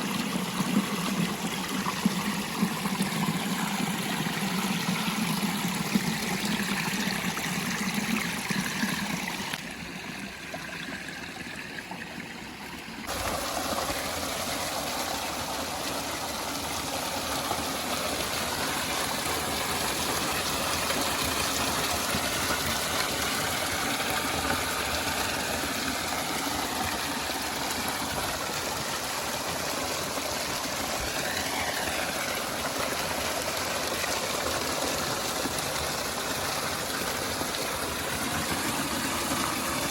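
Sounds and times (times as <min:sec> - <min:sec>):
waterfall splashing: 0:13.1 - 0:16.1.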